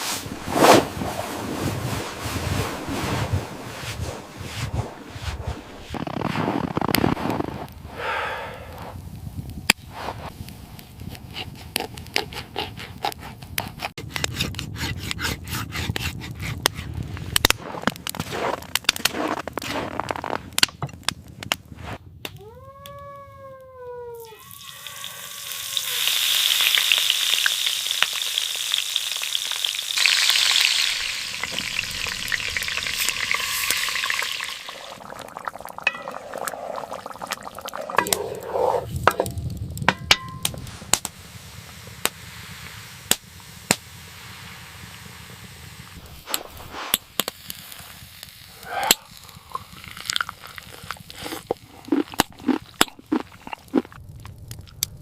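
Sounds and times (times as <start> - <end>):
food sizzling over a fire: 0.0 - 11.1, 24.2 - 55.0.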